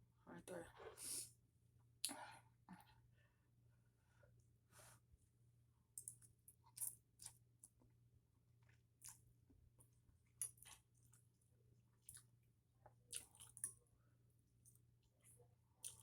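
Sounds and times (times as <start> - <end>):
person chewing and eating: 6.0 - 7.9, 8.6 - 13.9, 14.6 - 16.0.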